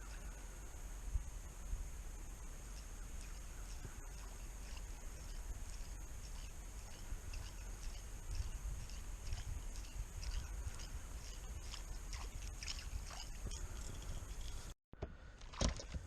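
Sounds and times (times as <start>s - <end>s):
steady high hiss: 0.0s - 12.1s
wind rumble on microphone: 0.0s - 14.8s.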